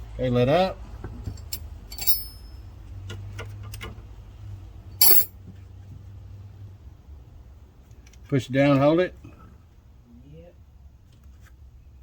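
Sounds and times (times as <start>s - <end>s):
metal tools clinking: 1.4s - 2.6s, 5.0s - 5.3s
low steady hum: 5.0s - 5.3s.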